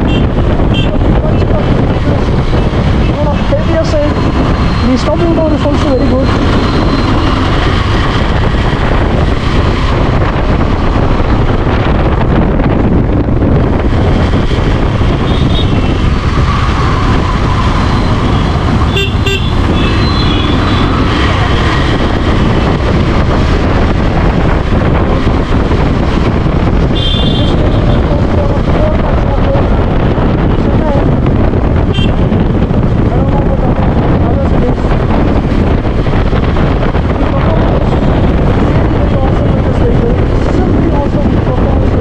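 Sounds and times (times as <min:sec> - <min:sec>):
vehicle horn toots: 0:00.0 - 0:00.9, 0:18.9 - 0:20.9, 0:26.9 - 0:27.6, 0:31.9 - 0:32.2
motorcycle engine running: 0:00.0 - 0:42.0
wind and road noise: 0:00.0 - 0:42.0.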